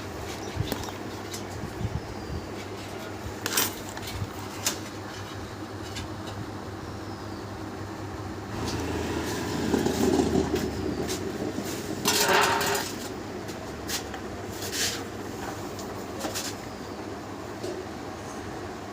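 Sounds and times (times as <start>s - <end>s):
motorcycle engine running: 8.5s - 13.3s.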